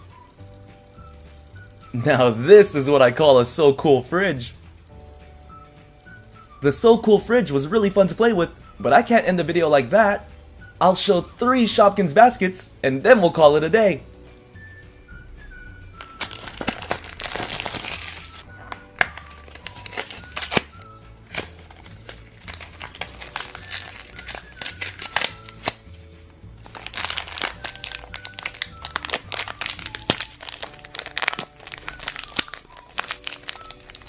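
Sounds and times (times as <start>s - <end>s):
light background music: 0.0s - 34.0s
plastic packaging crinkling: 16.0s - 25.8s, 26.6s - 34.0s.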